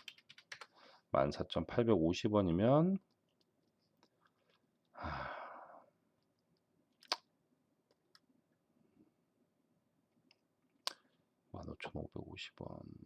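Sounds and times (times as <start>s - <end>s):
man sighing: 4.9s - 5.9s.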